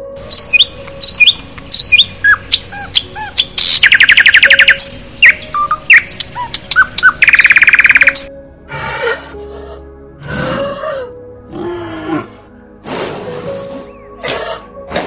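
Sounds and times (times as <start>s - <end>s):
small birds chirping: 0.2s - 8.3s, 13.6s - 14.6s
bird rattling trill: 3.6s - 8.3s.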